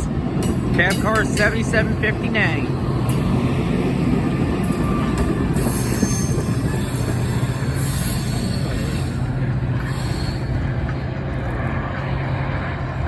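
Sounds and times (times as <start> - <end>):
train rumbling past: 0.0 - 13.0
train wheel squeals: 3.0 - 11.9.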